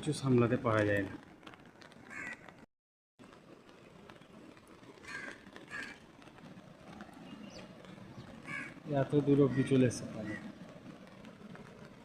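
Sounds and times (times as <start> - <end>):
crow cawing: 2.1 - 2.5, 5.0 - 6.0, 8.4 - 8.8, 9.5 - 10.5.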